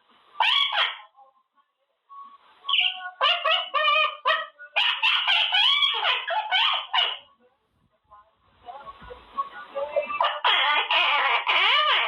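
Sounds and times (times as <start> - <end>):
parrot chattering: 0.4 - 1.1, 2.7 - 7.3, 10.1 - 12.0.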